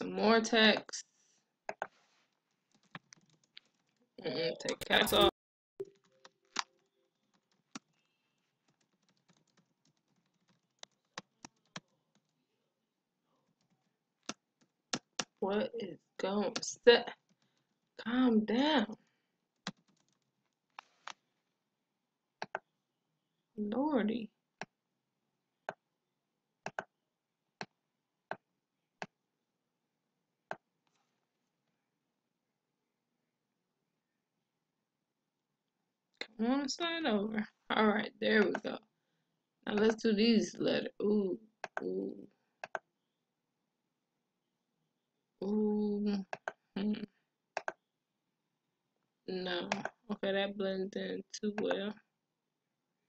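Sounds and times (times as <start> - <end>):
computer mouse clicking: 2.7 - 4.0, 19.6 - 21.2, 22.4 - 22.7, 26.7 - 26.9, 41.6 - 41.9, 42.6 - 42.9, 46.3 - 46.6, 47.6 - 47.8.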